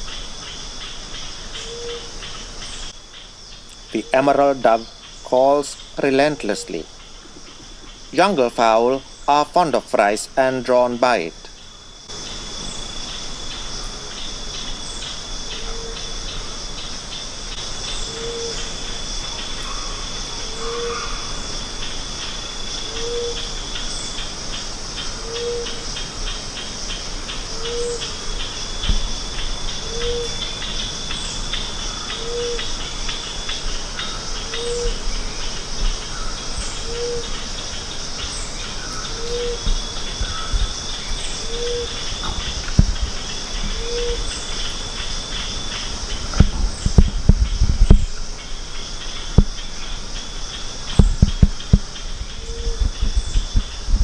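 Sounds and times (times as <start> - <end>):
crickets chirping: 0.0 - 54.0
dove hooting: 17.9 - 21.6, 22.8 - 23.9, 27.5 - 35.1, 36.0 - 37.5, 38.8 - 44.5.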